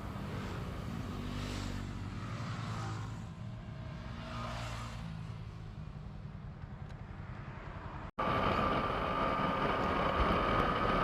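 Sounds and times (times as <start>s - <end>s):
motorcycle engine cruising: 8.2s - 11.0s.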